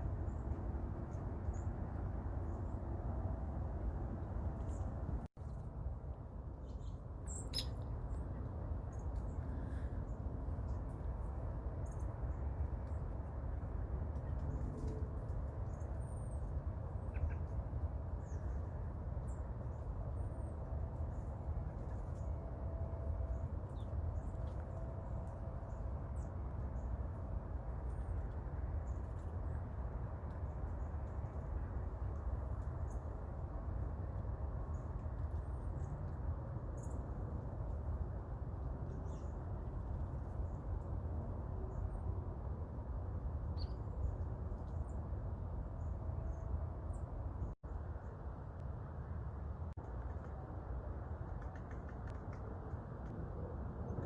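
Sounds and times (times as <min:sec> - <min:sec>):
low outdoor background rumble: 0:00.0 - 0:54.0
small birds chirping: 0:06.6 - 0:11.1
high bird chirps: 0:07.3 - 0:07.8.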